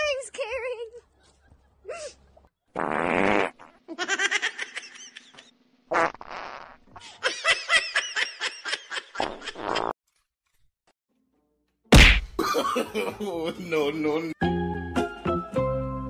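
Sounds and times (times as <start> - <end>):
fart noises: 2.7 - 3.8, 5.9 - 7.0, 9.2 - 10.0.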